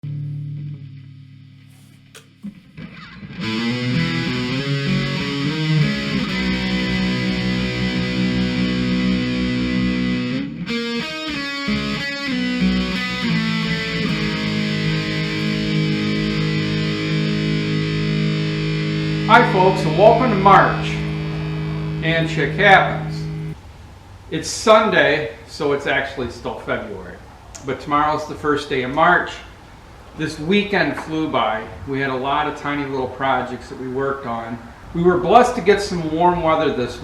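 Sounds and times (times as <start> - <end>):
distorted electric guitar chords: 0.0 - 23.6.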